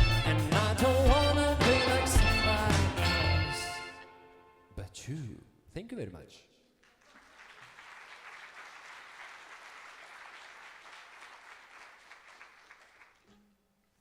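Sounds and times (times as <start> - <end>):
audience applauding: 6.9 - 13.3.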